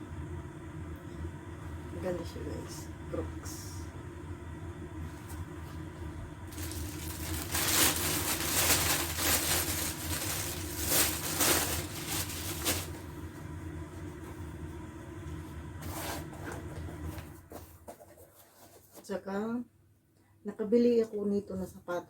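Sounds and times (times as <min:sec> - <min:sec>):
steady low hum: 0:00.0 - 0:18.2
packaging rustling and crinkling: 0:06.5 - 0:13.2.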